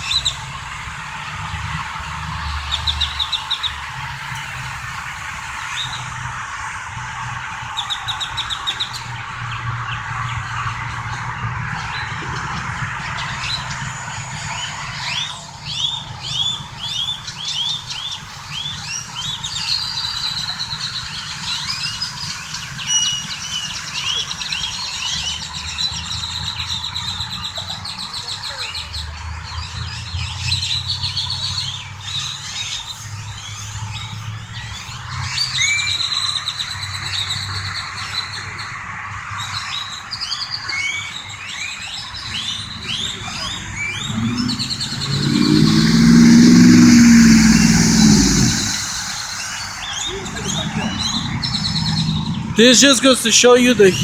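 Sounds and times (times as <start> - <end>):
idling vehicle engines hum: 42.1 - 54.0.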